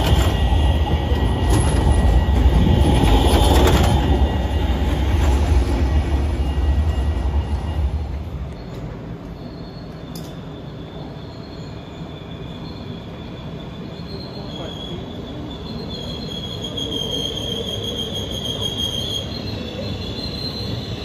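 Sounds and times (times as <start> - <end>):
electric train rumbling: 0.0 - 21.0
high steady squeal: 0.0 - 21.0.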